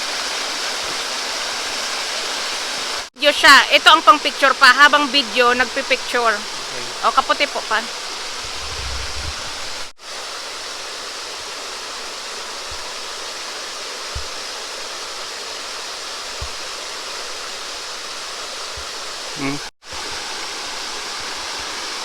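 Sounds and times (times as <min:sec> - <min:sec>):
waterfall pouring into a pool: 0:00.0 - 0:03.1, 0:09.5 - 0:22.0.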